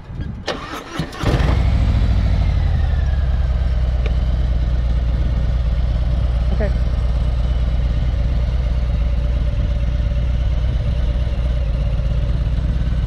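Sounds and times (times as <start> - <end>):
motorcycle engine starter cranking: 0.4 - 1.8
motorcycle engine idling: 1.6 - 13.0.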